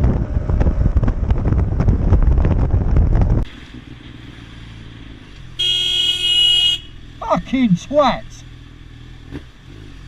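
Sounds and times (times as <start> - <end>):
wind buffeting microphone: 0.0 - 3.5.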